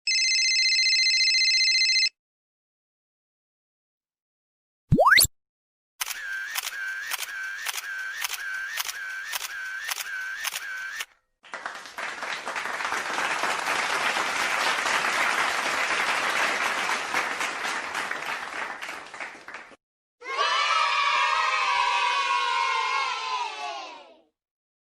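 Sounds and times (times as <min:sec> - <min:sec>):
repeating click over wavering tone: 0:06.0 - 0:11.0
applause-like noise wash: 0:11.4 - 0:19.8.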